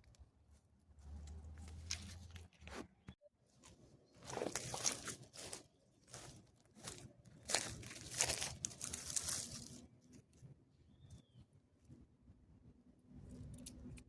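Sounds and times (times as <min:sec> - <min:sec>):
dry material crunching and rustling: 0:03.6 - 0:10.2.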